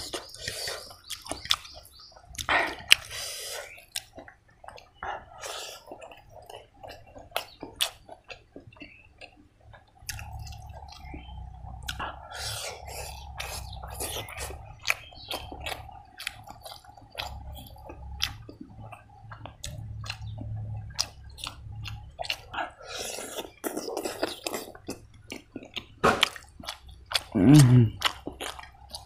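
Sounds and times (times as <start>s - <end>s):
fingers squishing food: 0.0s - 29.0s
person chewing and lip-smacking: 0.0s - 29.0s.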